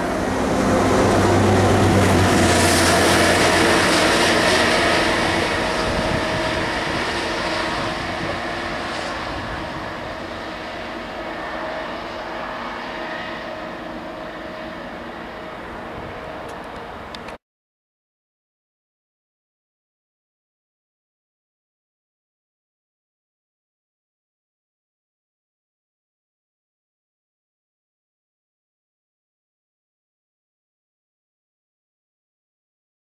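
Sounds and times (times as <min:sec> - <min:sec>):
diesel engine running: 0:00.0 - 0:17.4
train wheels on rail: 0:00.0 - 0:17.4.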